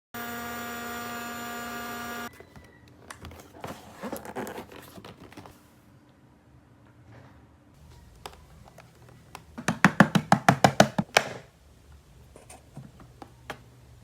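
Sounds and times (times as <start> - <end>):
plastic packaging crinkling: 2.3 - 5.6.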